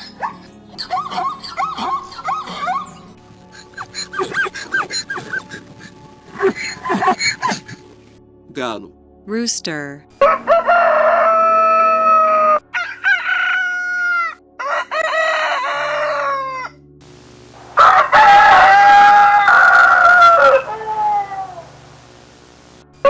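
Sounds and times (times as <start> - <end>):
roosters crowing: 10.2 - 16.8, 17.8 - 21.8.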